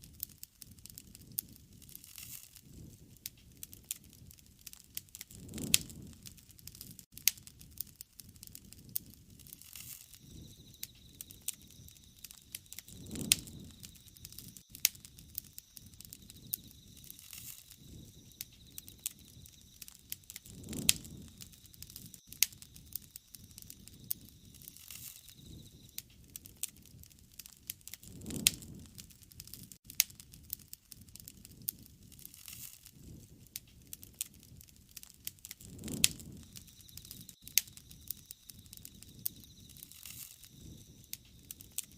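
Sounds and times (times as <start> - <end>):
sharp pops and snaps: 0.0 - 41.9
wood fire crackling: 0.0 - 41.9
rushing swells of flame: 0.1 - 41.9.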